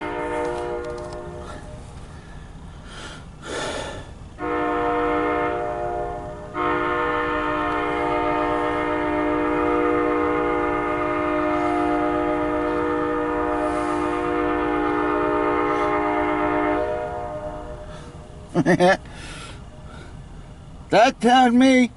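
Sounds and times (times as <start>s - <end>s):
train air horn blasts: 0.0s - 2.2s, 4.4s - 18.5s.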